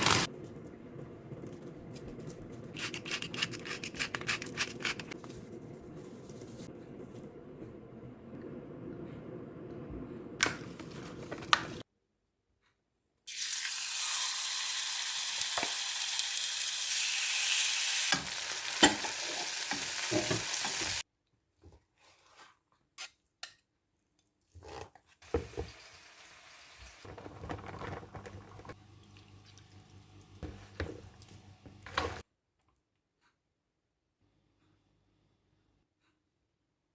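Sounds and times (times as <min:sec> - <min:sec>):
kitchen stirring noise: 0:01.9 - 0:07.2
utensil clicks and scrapes: 0:02.7 - 0:05.2
food sizzling in a frying pan: 0:13.3 - 0:21.0, 0:25.3 - 0:27.1.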